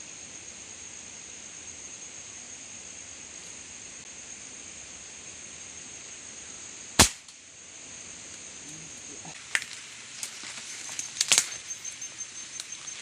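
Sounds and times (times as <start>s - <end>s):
air rifle shot: 7.0s - 7.3s
high-pitched insect chirring: 8.0s - 13.0s.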